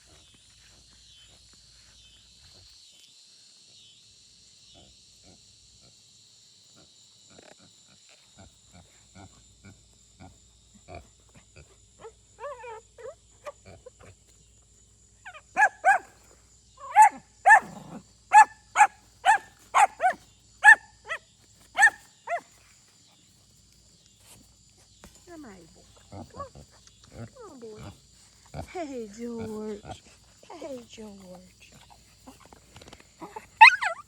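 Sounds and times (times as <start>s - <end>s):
dog barking: 15.3s - 16.2s, 16.8s - 21.2s, 21.8s - 22.5s, 33.3s - 34.0s.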